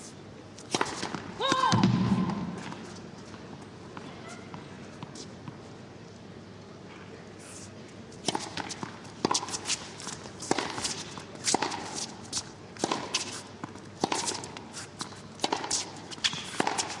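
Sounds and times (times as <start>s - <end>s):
tennis ball struck by rackets: 0.6s - 2.7s, 8.2s - 12.2s, 12.8s - 13.3s, 14.0s - 14.6s, 15.4s - 17.0s.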